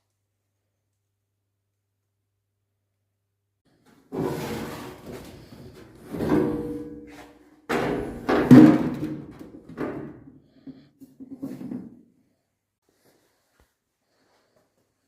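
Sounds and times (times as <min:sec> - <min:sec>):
metal bangs and clanks: 0:04.1 - 0:10.2.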